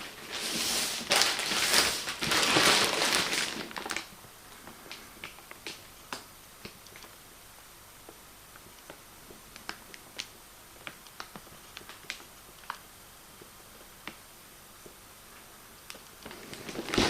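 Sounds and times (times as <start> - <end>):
packaging rustling: 0.0 - 4.2, 16.2 - 17.0
parcel clicks and taps: 13.4 - 14.2.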